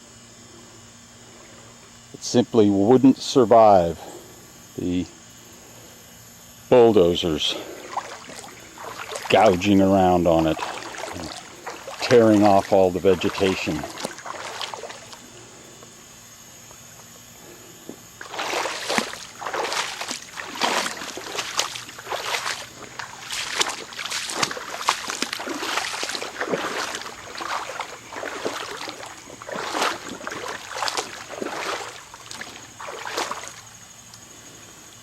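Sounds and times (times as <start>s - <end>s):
footsteps splashing in water: 7.3s - 15.4s, 18.2s - 34.3s.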